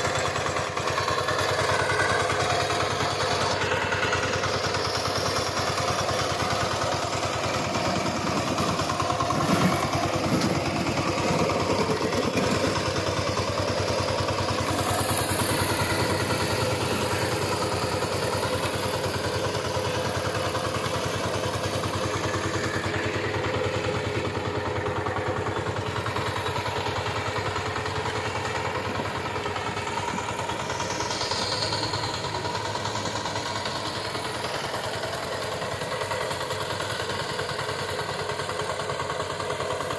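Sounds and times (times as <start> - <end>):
diesel tiller engine chugging: 0.0 - 39.9
loud clatter: 0.1 - 23.0.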